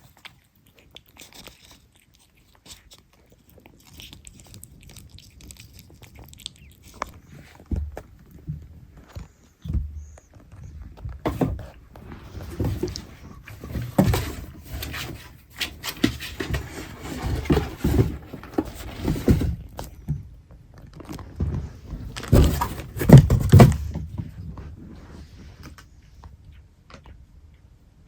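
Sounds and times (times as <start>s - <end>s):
kitten scuffling: 6.8s - 20.1s, 21.3s - 25.8s.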